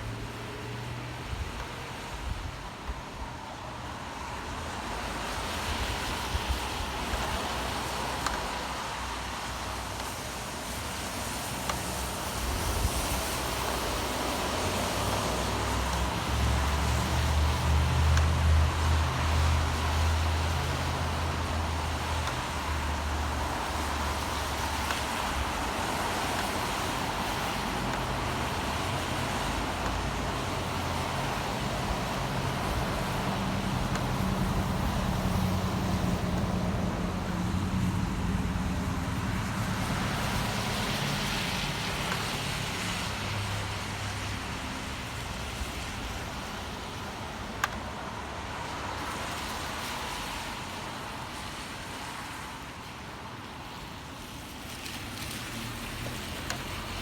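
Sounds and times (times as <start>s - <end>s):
traffic passing on wet road: 0.0s - 57.0s.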